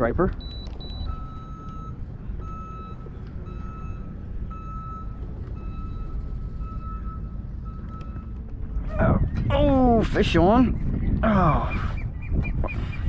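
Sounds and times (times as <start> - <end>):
low rumble of wind or motor: 0.0 - 13.0
electronic warning beeps: 0.4 - 8.4.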